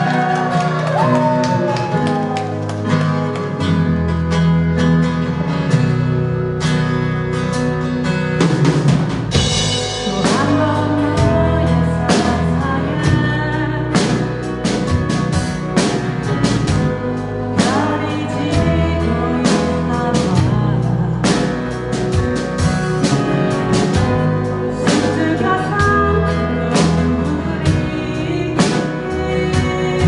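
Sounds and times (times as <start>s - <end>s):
person singing: 0.0s - 2.6s, 9.8s - 15.0s, 16.7s - 30.0s
live band playing: 0.0s - 30.0s
drum kit beat: 8.4s - 30.0s.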